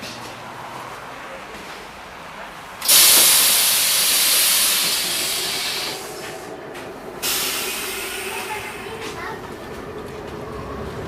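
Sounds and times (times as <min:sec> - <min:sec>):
tram air hiss: 0:02.3 - 0:09.5.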